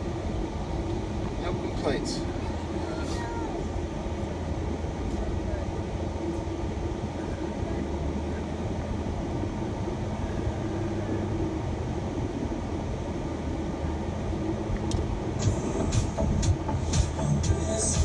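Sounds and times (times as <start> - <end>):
road and engine rumble in van: 0.0 - 18.0.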